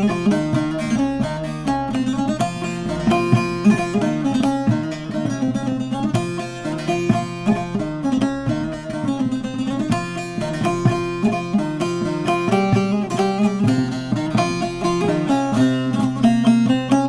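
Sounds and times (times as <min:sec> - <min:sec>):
plucked lute notes: 0:00.0 - 0:17.0.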